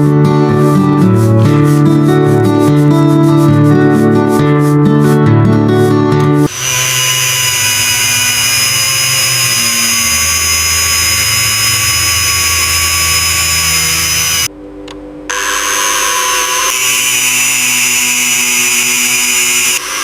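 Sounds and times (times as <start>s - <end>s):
power tool running: 6.5s - 14.5s, 15.3s - 20.0s.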